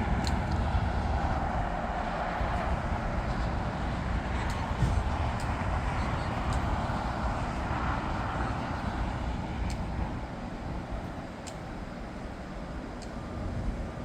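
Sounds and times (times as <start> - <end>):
jet airliner engines rumbling: 0.0 - 14.0
faint clicks: 0.2 - 0.6, 6.5 - 6.8, 9.6 - 9.9, 11.0 - 11.8, 12.9 - 13.2.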